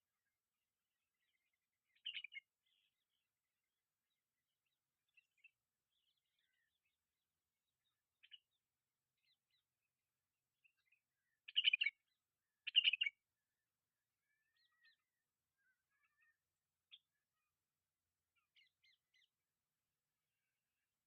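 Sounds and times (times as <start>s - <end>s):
faint bird chirps: 1.1s - 3.4s, 4.0s - 21.0s.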